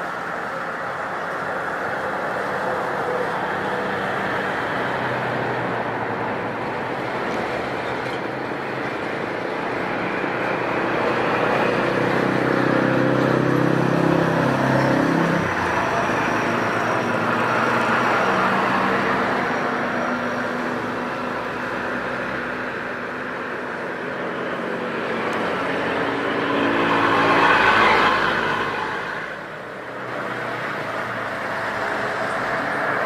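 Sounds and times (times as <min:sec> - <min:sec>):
road traffic roar: 0:00.0 - 0:33.0
vehicle passing close by: 0:09.8 - 0:22.7, 0:24.3 - 0:33.0.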